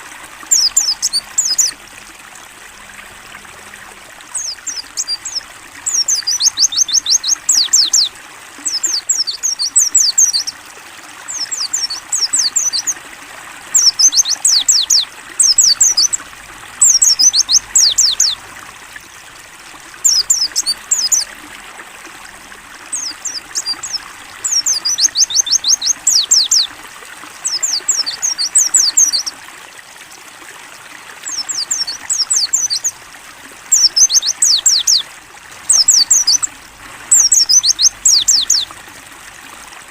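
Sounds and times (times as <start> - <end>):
water trickling: 0.0 - 39.9
bird singing high chirps: 0.5 - 1.8, 4.3 - 10.6, 11.3 - 13.0, 13.8 - 16.2, 16.8 - 18.4, 20.0 - 21.3, 22.9 - 26.7, 27.4 - 29.3, 31.3 - 32.9, 33.7 - 35.0, 35.7 - 36.5, 37.1 - 38.7.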